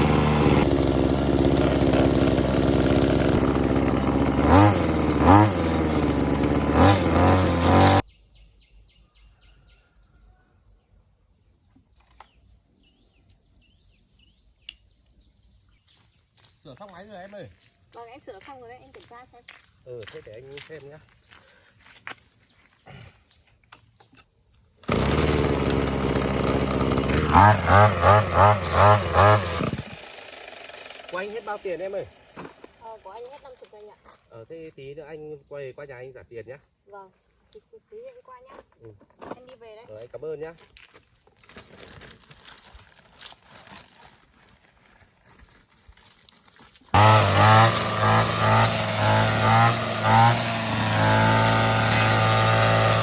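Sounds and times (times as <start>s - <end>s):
brush cutter engine revving: 0.0s - 8.0s, 24.8s - 33.5s, 46.9s - 53.0s
rustling: 40.8s - 46.9s.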